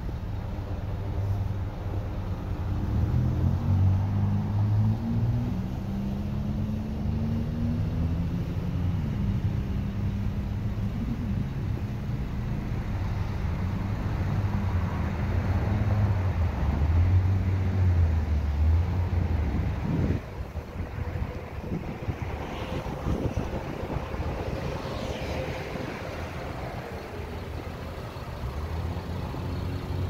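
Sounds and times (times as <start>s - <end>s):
car engine idling: 25.7s - 30.0s.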